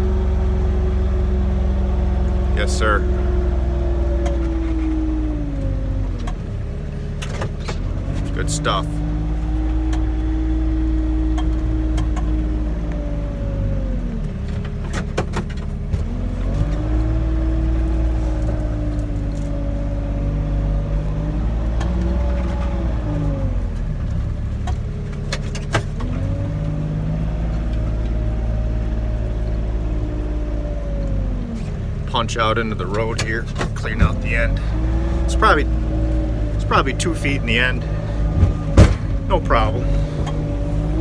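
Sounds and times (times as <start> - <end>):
diesel engine running under load: 0.0 - 41.0
sharp knocks: 38.3 - 39.4.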